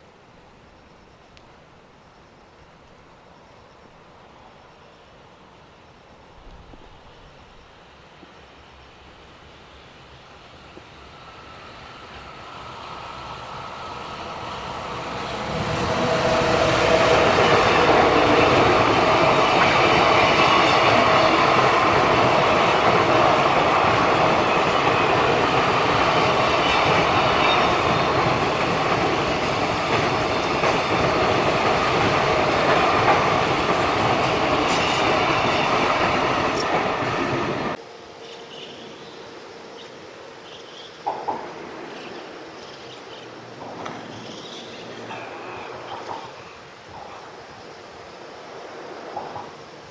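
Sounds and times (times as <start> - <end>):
freight train passing on rails: 3.7 - 49.9
wheels squealing: 24.4 - 37.8.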